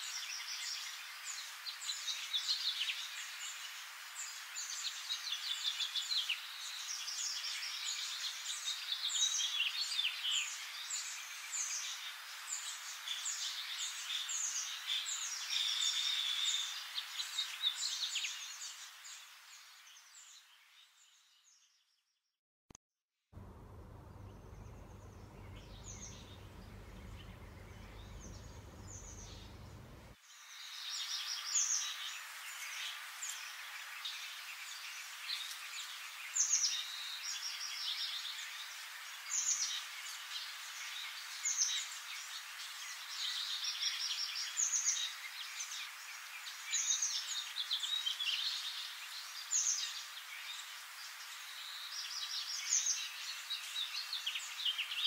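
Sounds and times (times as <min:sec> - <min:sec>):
low rumble: 0:23.4 - 0:30.2
songbirds chirping and singing: 0:23.4 - 0:32.0.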